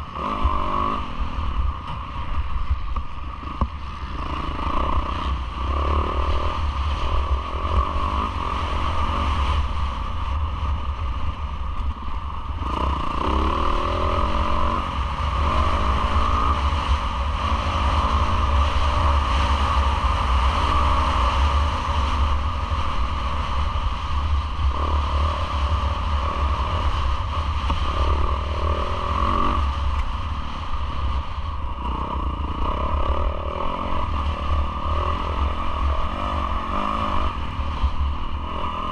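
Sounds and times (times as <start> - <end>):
motocross engine revving: 0.0 - 1.5, 3.3 - 9.7, 12.6 - 23.7, 24.6 - 30.6, 31.7 - 38.9.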